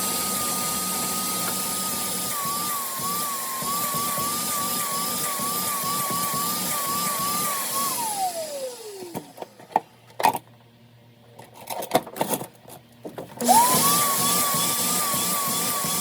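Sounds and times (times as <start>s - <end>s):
power tool motor whining: 0.0s - 9.6s, 13.4s - 16.0s.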